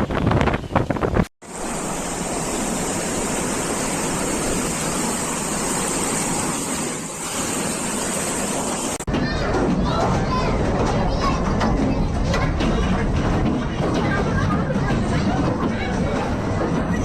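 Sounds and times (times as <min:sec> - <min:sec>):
wind gusting against microphone: 0:00.0 - 0:09.0
steady rushing noise: 0:00.0 - 0:17.0.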